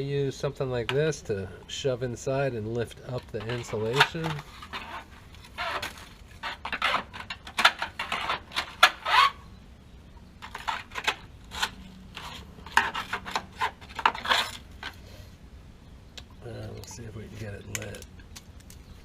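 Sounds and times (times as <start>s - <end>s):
tool scraping and clicking: 3.1s - 9.4s, 10.4s - 15.0s.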